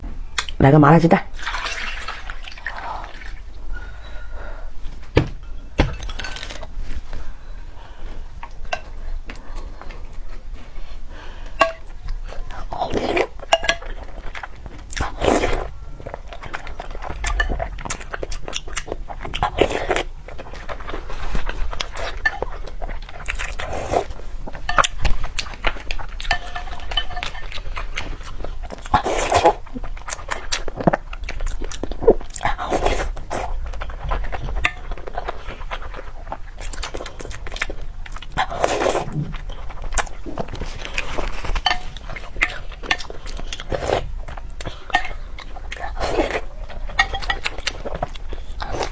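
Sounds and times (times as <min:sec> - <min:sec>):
wet chewing and smacking: 0:08.1 - 0:48.9
biting and mouth noise: 0:11.6 - 0:48.9.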